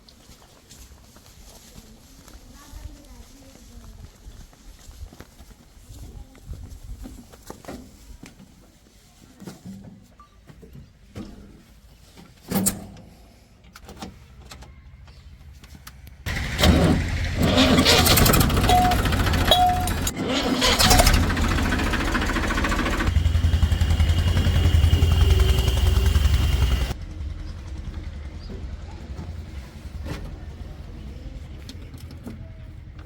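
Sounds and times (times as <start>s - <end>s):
vehicle engine rumbling: 16.3s - 33.0s.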